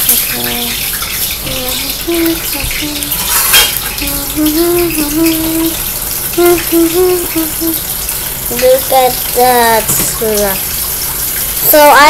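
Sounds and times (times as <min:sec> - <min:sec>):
running water: 0:00.0 - 0:12.0
person humming: 0:01.4 - 0:03.2, 0:04.0 - 0:05.8, 0:06.4 - 0:07.8.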